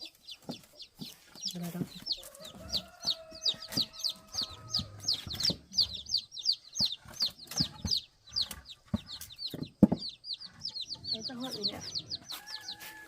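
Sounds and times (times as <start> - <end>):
chicks peeping: 0.0 - 13.0
scattered knocks: 6.8 - 10.8.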